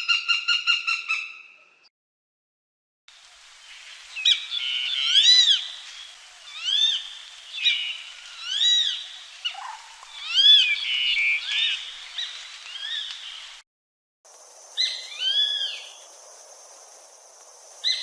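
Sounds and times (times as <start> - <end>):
bird of prey calling: 6.5 - 13.4.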